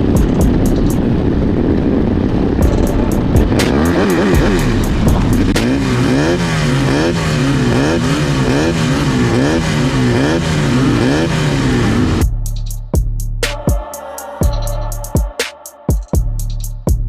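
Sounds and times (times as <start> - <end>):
race car engines revving: 0.0 - 12.7.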